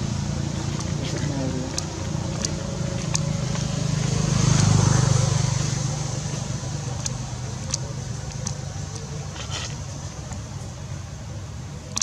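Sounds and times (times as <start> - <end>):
vehicle engine passing by: 0.0 - 9.8
faint sharp clicks: 7.0 - 10.7.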